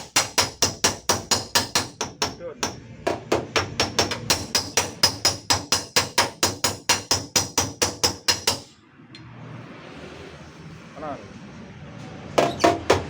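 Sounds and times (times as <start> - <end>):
hammer tapping on sheet steel: 0.0 - 8.8, 12.4 - 13.0.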